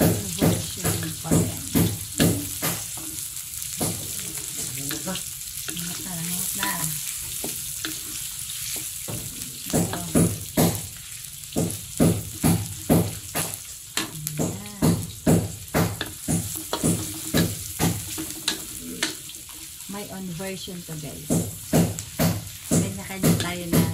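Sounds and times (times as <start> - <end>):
wooden spatula scraping a pan: 0.0 - 14.6, 16.0 - 20.0
food sizzling in a wok: 0.0 - 23.9.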